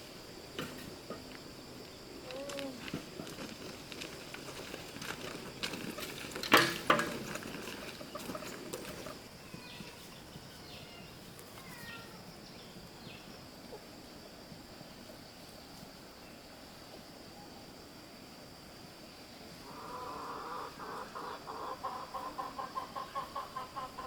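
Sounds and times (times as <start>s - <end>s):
high insect buzz: 18.1s - 24.0s.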